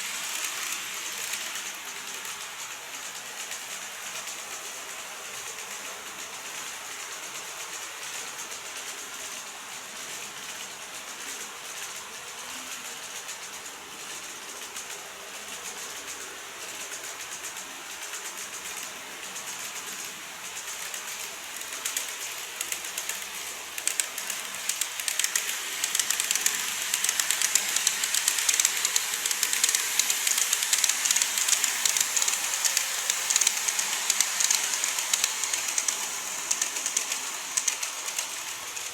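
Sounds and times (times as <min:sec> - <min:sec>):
model train rolling hiss: 0:00.0 - 0:38.9
wheels clicking over rail joints: 0:20.5 - 0:38.9.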